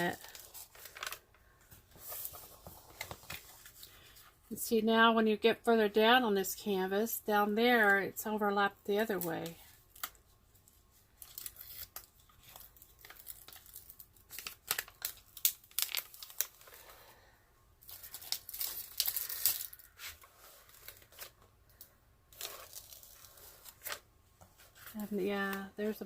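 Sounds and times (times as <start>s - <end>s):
plastic film crinkling: 0.0s - 1.4s, 9.2s - 17.1s, 17.8s - 24.0s.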